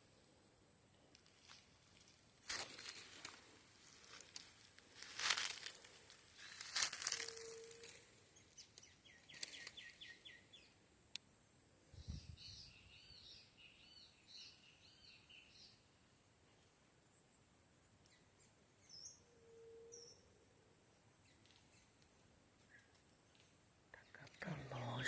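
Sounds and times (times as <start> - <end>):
dry leaves rustling and crunching: 1.2 - 8.1.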